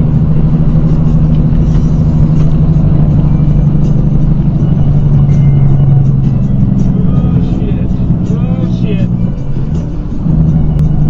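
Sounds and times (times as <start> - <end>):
car engine drone and road noise: 0.0 - 11.0.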